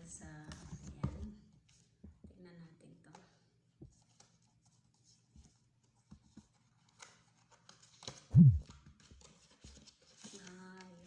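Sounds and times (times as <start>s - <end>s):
loud low thump: 8.3s - 8.6s.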